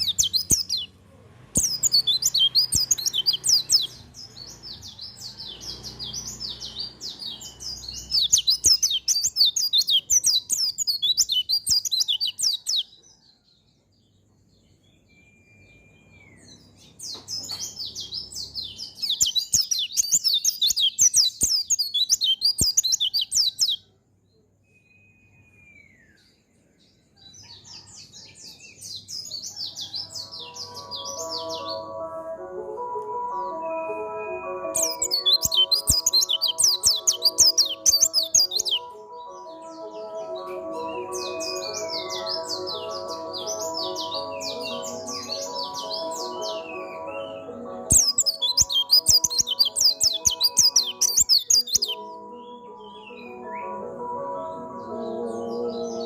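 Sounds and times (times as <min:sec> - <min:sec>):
bird twittering song: 0:00.0 - 0:00.9, 0:01.6 - 0:23.9, 0:34.8 - 0:53.8.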